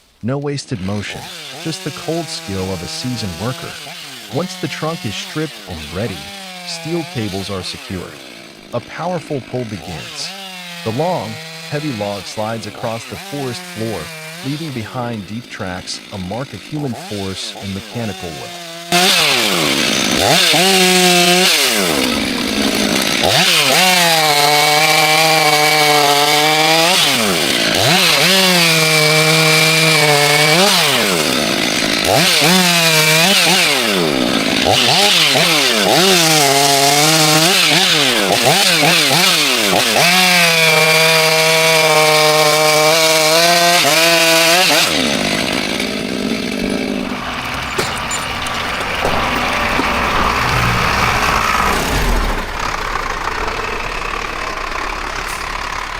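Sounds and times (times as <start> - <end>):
chainsaw revving: 0.0 - 55.9
steady engine sound: 0.9 - 40.9, 42.5 - 55.9.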